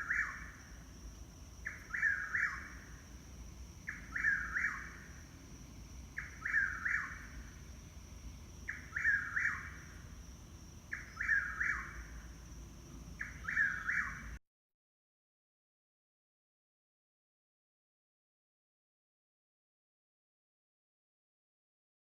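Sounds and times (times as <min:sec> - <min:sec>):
bird calling: 0:00.0 - 0:00.6, 0:01.6 - 0:03.0, 0:03.9 - 0:05.2, 0:06.2 - 0:07.5, 0:08.7 - 0:10.0, 0:10.9 - 0:12.2, 0:13.2 - 0:14.4.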